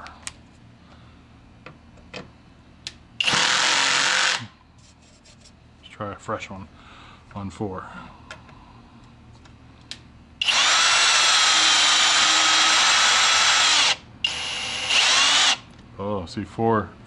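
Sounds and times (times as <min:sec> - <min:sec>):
cordless drill driving screw: 0:03.2 - 0:04.4, 0:10.4 - 0:15.6.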